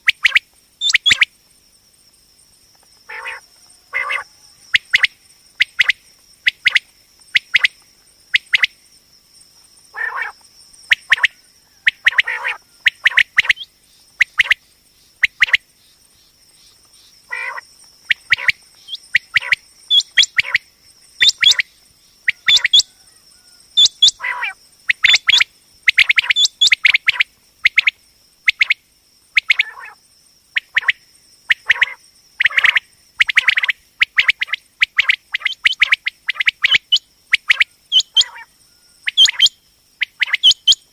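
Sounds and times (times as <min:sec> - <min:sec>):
quail calling: 0:00.2 - 0:01.3, 0:03.1 - 0:05.1, 0:09.9 - 0:10.4, 0:11.0 - 0:14.6, 0:17.3 - 0:20.6, 0:21.2 - 0:21.6, 0:22.2 - 0:27.9, 0:29.4 - 0:30.0, 0:31.5 - 0:39.5.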